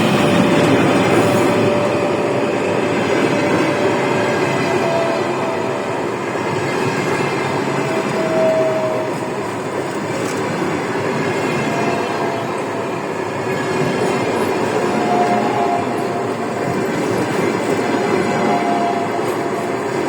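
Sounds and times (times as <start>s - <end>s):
train wheels rumbling on rails: 0.0s - 20.0s
faint high squeal: 3.4s - 9.6s.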